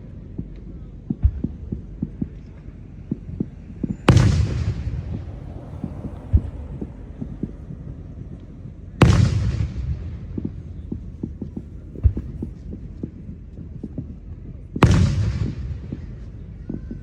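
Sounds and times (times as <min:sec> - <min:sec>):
distant firework booms: 0:03.1 - 0:14.1, 0:14.8 - 0:17.0
loud firework burst: 0:04.1 - 0:08.0, 0:09.0 - 0:12.4.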